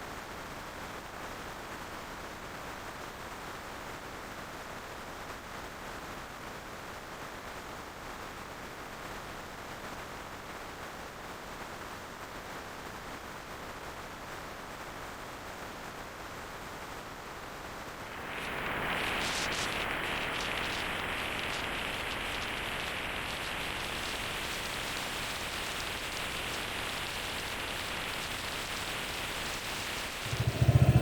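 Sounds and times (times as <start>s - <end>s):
rushing wind: 30.0s - 31.0s.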